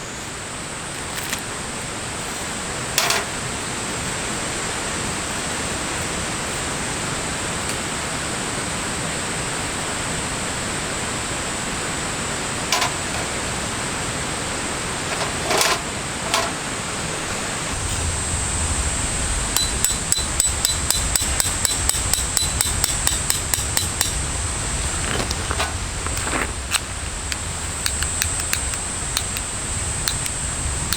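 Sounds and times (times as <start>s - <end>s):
insect drone: 0.0s - 30.9s
rapid metallic tapping: 19.6s - 24.2s.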